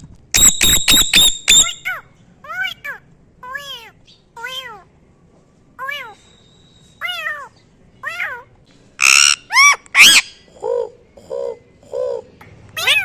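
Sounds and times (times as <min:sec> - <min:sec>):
parrot calling: 0:00.3 - 0:04.9, 0:05.8 - 0:13.0
parrot squawking harshly: 0:00.4 - 0:04.9, 0:07.0 - 0:10.5, 0:12.8 - 0:13.0.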